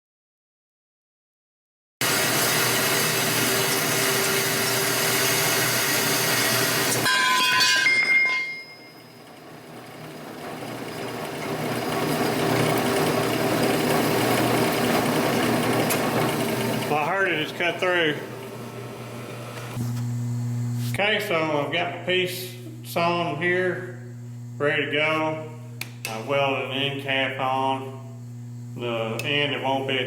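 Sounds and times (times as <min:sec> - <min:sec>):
band saw cutting steel: 0:02.0 - 0:19.8
short high ringing: 0:07.0 - 0:09.2.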